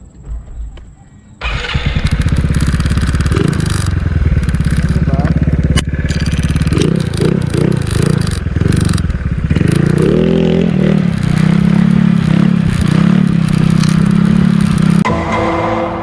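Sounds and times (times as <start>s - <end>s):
motorcycle engine revving: 1.4s - 15.2s.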